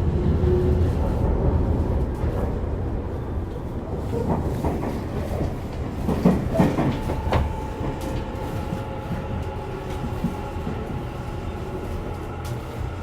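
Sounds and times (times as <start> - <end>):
train low rumble: 0.0 - 13.0
electric train whine: 6.4 - 13.0.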